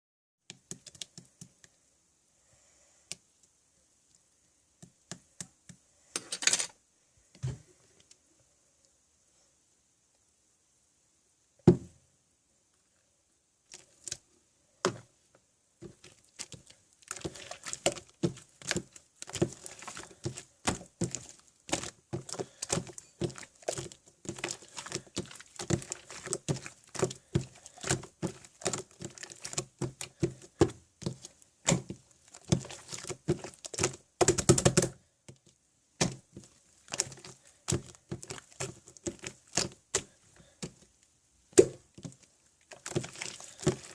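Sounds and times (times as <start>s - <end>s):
slime squelch: 13.6s - 43.9s.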